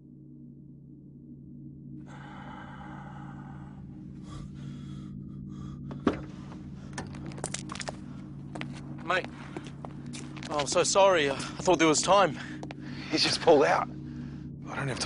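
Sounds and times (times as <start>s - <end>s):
low steady hum: 0.0s - 15.0s
breathy rush: 2.1s - 7.3s.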